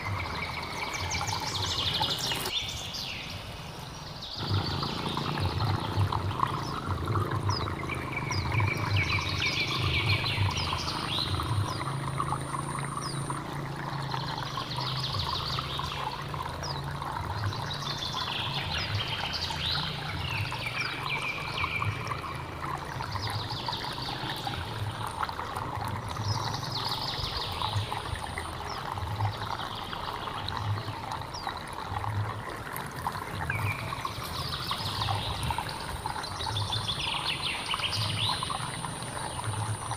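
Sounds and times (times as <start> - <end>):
bird singing: 0.0 - 25.2, 33.5 - 39.9
stream flowing: 0.0 - 39.9.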